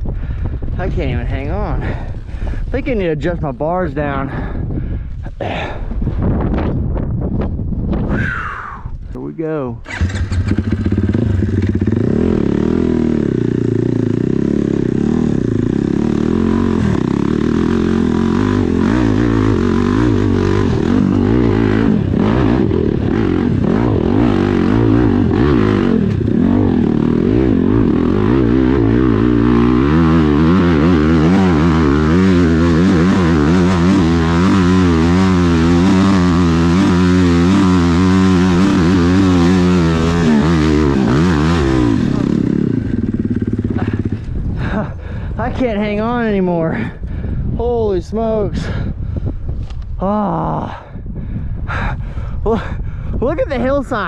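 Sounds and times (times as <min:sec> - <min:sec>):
dirt bike engine revving: 0:09.8 - 0:46.3.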